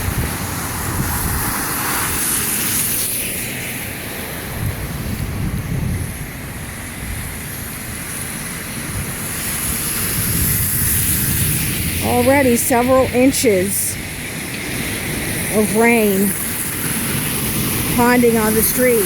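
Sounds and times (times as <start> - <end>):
tyres hissing through water: 0.0 - 5.2, 6.4 - 19.0
wind rumble on microphone: 0.0 - 13.3.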